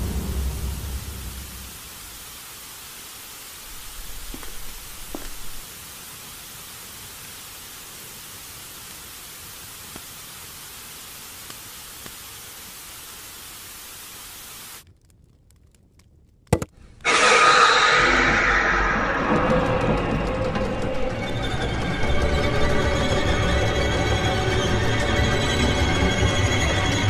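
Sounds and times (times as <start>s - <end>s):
scary music: 0.0s - 1.8s, 17.0s - 27.0s
television static hissing: 0.0s - 14.8s.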